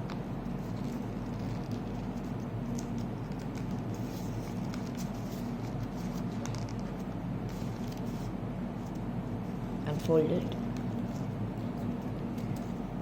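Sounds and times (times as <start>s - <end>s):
paper being folded and creased: 0.6s - 8.3s.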